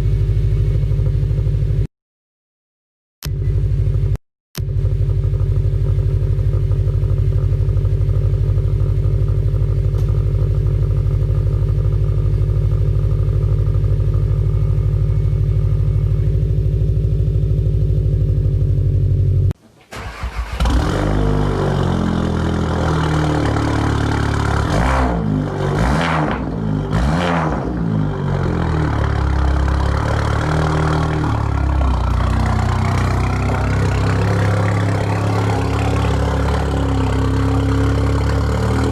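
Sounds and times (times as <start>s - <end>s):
vehicle engine running: 0.0s - 1.9s, 3.2s - 38.9s
engine revving: 4.0s - 38.9s
engine cranking and starting: 19.8s - 21.6s.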